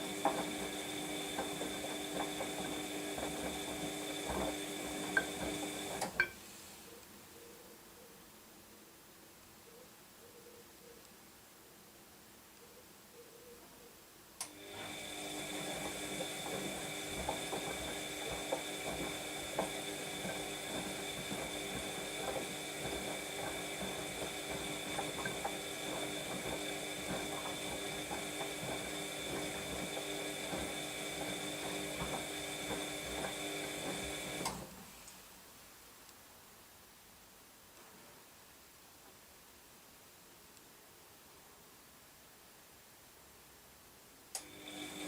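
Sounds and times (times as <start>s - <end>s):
washing machine motor hum: 0.0s - 6.4s, 14.4s - 34.9s, 44.4s - 45.0s.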